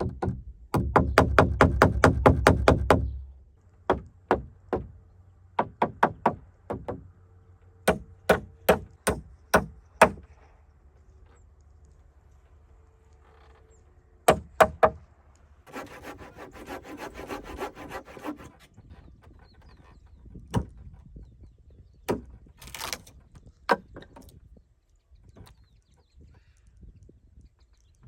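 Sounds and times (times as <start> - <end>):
scraping or sawing wood: 15.6 - 19.9.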